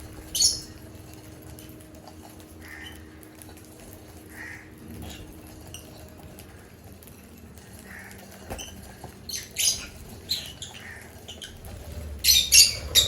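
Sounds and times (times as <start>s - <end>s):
lovebirds chirping: 0.0s - 1.0s, 7.7s - 13.0s.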